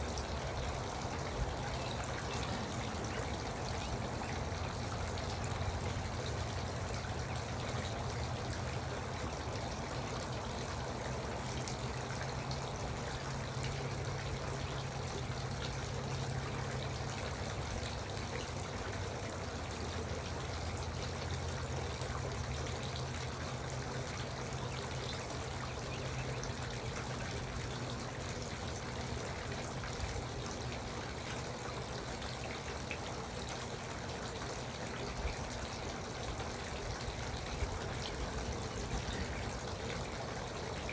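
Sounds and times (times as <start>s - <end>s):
fountain water trickling and splashing: 0.0s - 40.9s.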